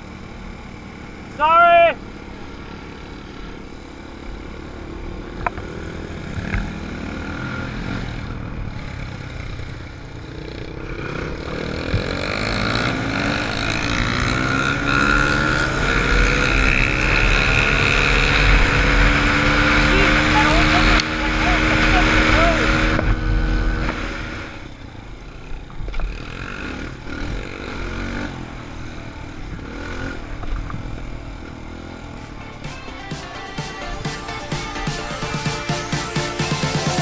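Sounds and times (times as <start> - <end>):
dirt bike engine: 0.0 - 37.0.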